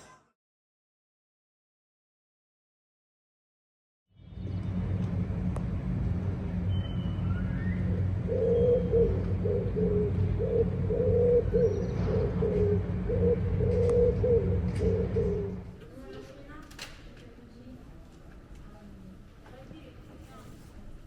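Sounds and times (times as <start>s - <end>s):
steady low hum: 4.2s - 16.0s
pigeon cooing: 7.7s - 15.7s.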